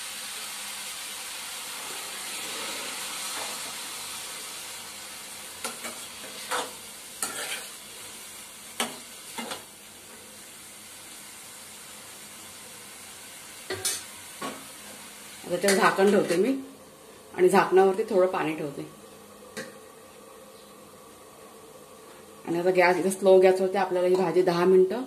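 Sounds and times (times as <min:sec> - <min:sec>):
beans sizzling in a metal pan: 0:00.0 - 0:25.0
metal spatula scraping a pan: 0:05.6 - 0:07.8.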